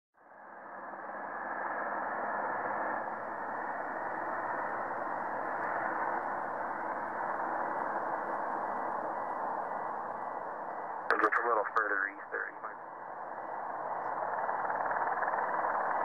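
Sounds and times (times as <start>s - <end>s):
radio static hiss: 11.1s - 12.8s.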